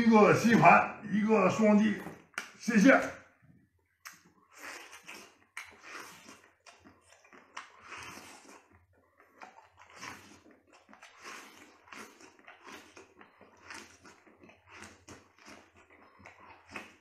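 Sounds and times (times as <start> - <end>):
person biting and chewing: 3.9 - 17.0.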